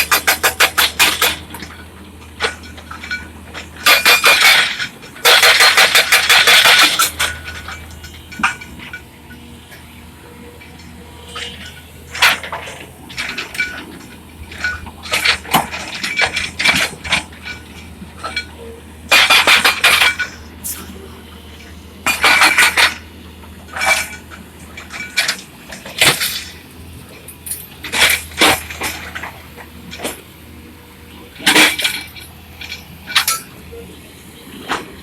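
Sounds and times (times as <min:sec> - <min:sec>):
excavator engine drone: 0:00.0 - 0:35.0
metallic clanking: 0:11.3 - 0:20.9.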